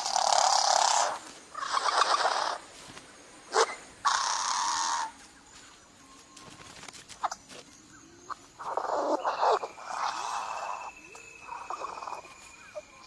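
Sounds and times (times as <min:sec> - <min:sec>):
bird giving wheezy buzzing calls: 0:00.0 - 0:02.7, 0:03.5 - 0:05.1, 0:08.6 - 0:12.3.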